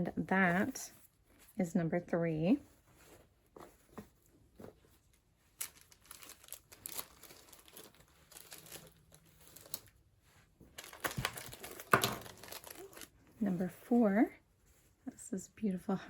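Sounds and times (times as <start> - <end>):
paper rustling and crinkling: 2.5 - 13.8.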